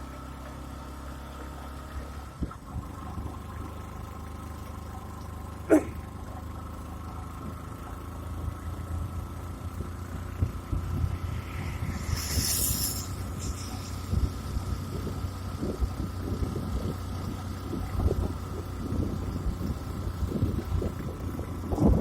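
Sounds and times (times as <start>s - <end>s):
low engine rumble: 0.0s - 22.0s
wind hissing on microphone: 9.0s - 22.0s.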